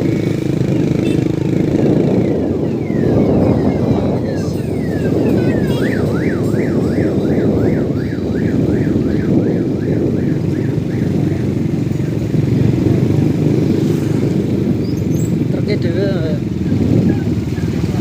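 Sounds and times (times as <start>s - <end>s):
siren yelping: 0.9s - 12.2s.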